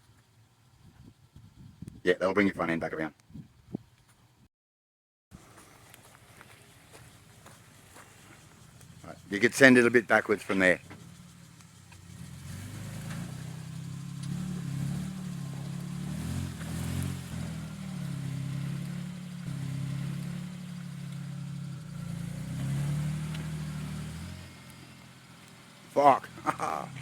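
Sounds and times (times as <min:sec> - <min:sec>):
off-road vehicle engine revving: 0:05.4 - 0:27.0.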